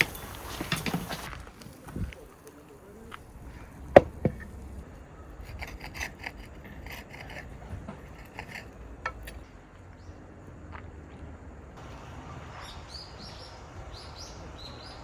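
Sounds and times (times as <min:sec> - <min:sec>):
light scratchy scraping: 0:05.4 - 0:09.5.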